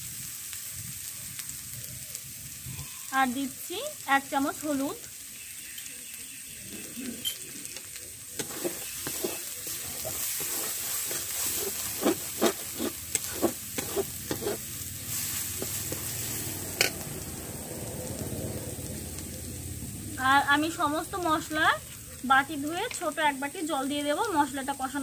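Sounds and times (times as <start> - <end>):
spice paste sizzling in oil: 0.0 - 25.0
steel spatula scraping a pan: 8.4 - 17.0.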